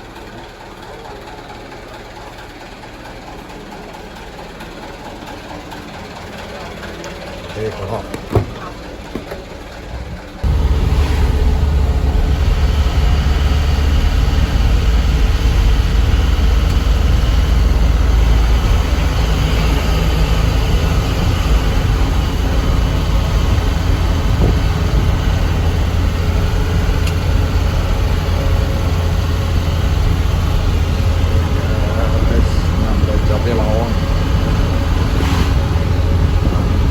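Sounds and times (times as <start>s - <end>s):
deep truck engine drone: 5.1s - 36.9s
road noise: 6.2s - 36.9s.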